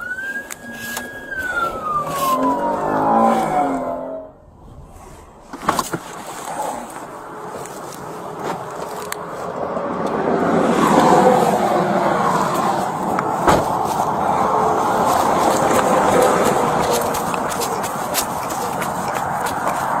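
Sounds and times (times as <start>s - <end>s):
police siren wail: 0.0s - 4.6s, 14.0s - 19.8s
highway traffic noise: 0.0s - 20.0s.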